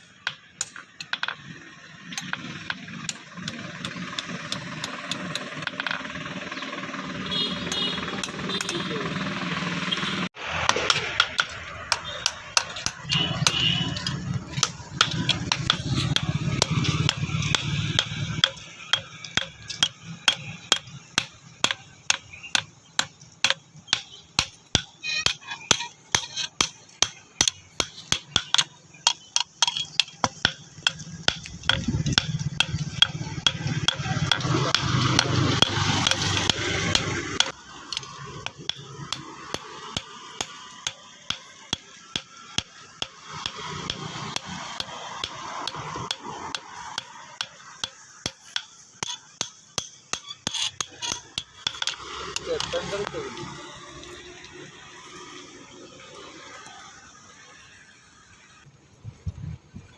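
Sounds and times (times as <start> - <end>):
hammer striking metal: 0.1 - 6.3, 7.3 - 9.0, 10.4 - 53.2
voices talking: 0.8 - 10.3, 51.8 - 58.0.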